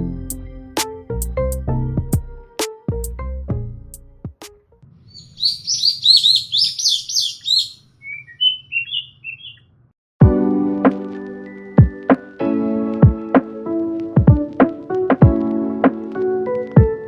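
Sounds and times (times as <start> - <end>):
background music: 0.0 - 4.7, 10.2 - 17.0
small bird chirping: 5.0 - 9.7.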